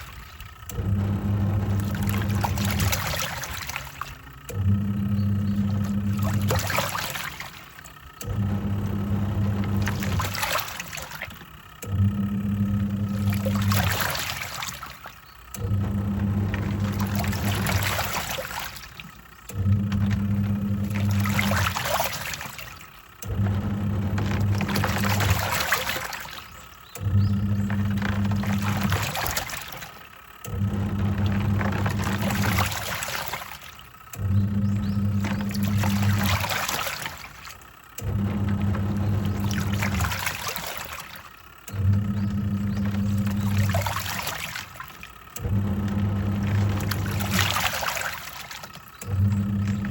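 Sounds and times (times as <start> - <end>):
washing machine motor humming: 0.0 - 49.9
water and clothes sloshing: 0.0 - 49.9.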